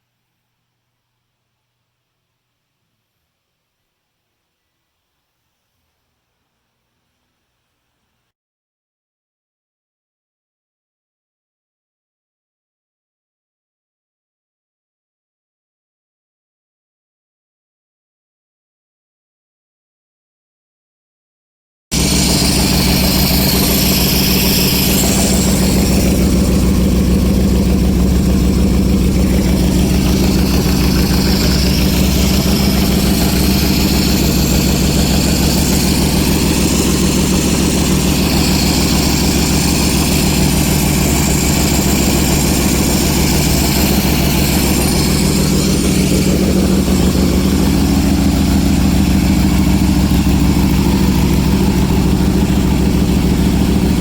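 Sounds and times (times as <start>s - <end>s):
motorcycle engine idling: 22.0s - 54.0s.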